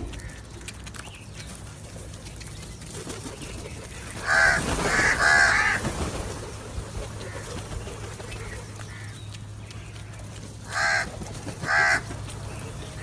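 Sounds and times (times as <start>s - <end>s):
crow cawing: 4.2s - 5.8s, 8.8s - 9.2s, 10.7s - 12.1s.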